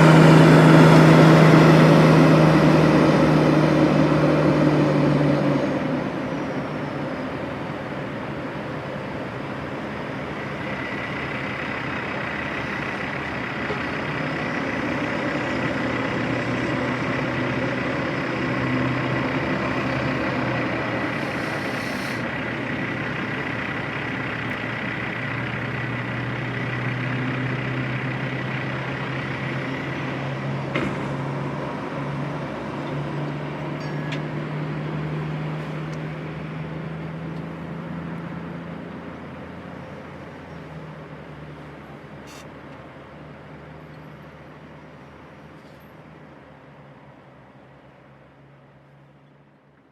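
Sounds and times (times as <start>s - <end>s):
diesel truck engine running: 0.0s - 48.6s
brief hiss: 21.0s - 22.3s, 42.2s - 42.5s.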